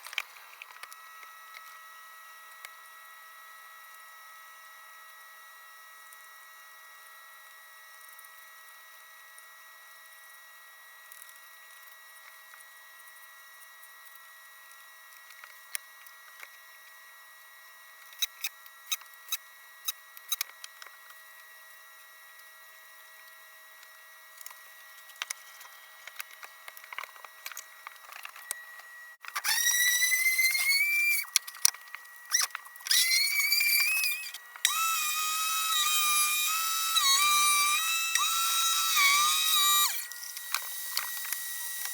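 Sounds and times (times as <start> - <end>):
circular saw whining: 29.2 - 31.4, 32.2 - 41.9.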